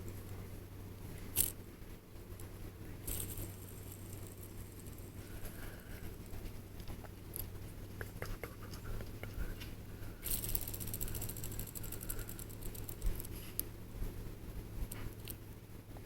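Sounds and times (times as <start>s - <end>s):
low hum: 0.0s - 15.3s
fidget spinner whirring: 1.2s - 1.6s, 2.4s - 7.4s, 8.9s - 14.2s
fidget spinner clicks: 1.3s - 1.6s, 3.1s - 5.2s, 10.2s - 13.7s.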